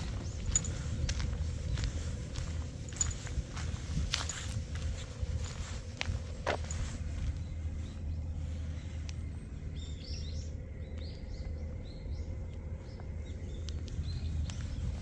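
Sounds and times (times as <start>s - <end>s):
low outdoor rumble: 0.0s - 15.0s
small birds chirping: 0.0s - 15.0s.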